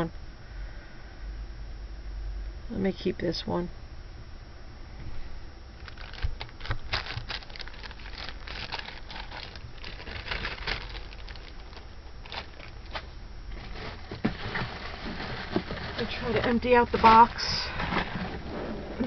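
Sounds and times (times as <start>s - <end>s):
plastic bags crinkling: 5.8s - 18.4s.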